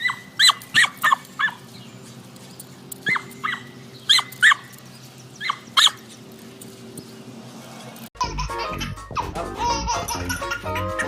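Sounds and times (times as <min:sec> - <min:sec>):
dog barking in high yips: 0:00.0 - 0:01.6, 0:03.0 - 0:04.7, 0:05.4 - 0:06.0.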